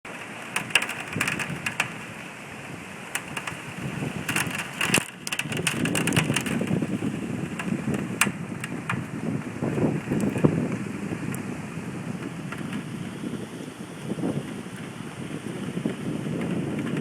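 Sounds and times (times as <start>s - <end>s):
sharp crackles and taps: 0.1s - 2.1s, 3.1s - 11.4s, 12.2s - 13.1s
hurricane wind: 0.1s - 17.0s
rain: 0.1s - 17.0s
wind buffeting microphone: 0.1s - 17.0s.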